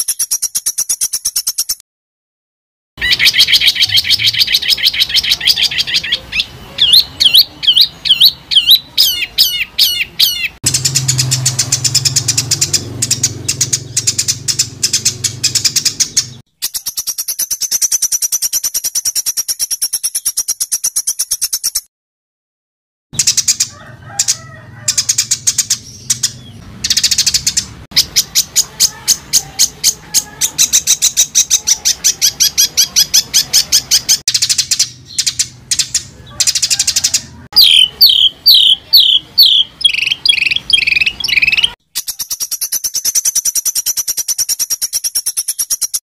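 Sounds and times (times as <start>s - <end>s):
songbird song: 0.0s - 1.8s, 3.0s - 21.8s, 23.2s - 46.0s.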